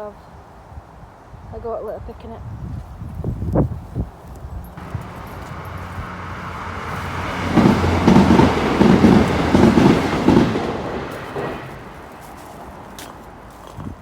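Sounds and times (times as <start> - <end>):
train rushing past: 4.8 - 13.4
train wheels clattering over joints: 4.8 - 13.8.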